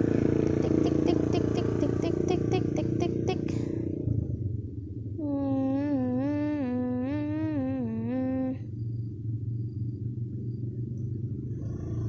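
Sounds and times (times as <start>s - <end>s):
low background rumble: 0.0s - 11.9s
person humming: 0.6s - 3.8s, 5.2s - 8.7s.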